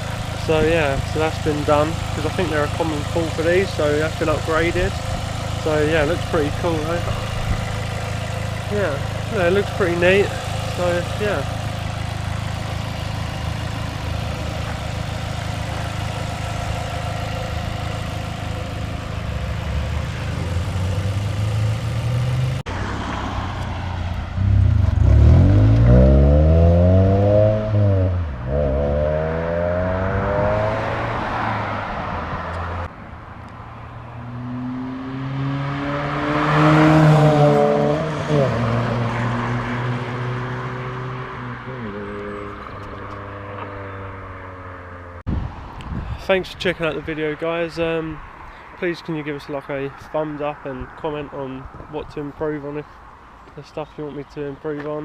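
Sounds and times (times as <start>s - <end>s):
car engine idling: 0.0s - 22.7s
car engine revving: 0.0s - 32.9s, 33.7s - 45.2s.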